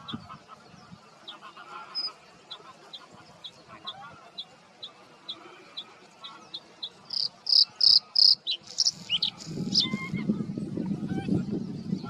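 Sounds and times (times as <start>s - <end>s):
bird singing: 5.3s - 10.2s.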